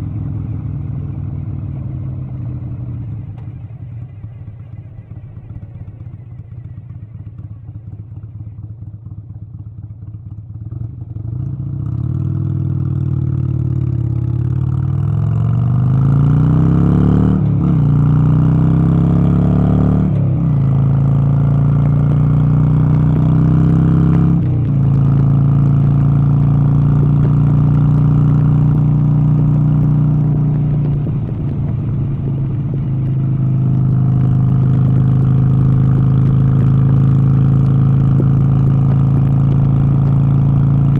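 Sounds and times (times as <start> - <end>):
vehicle engine revving: 15.2 - 40.9.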